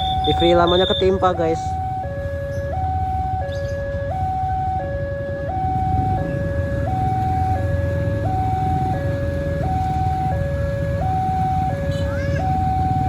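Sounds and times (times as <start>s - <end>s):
two-tone crossing alarm: 0.0s - 13.0s.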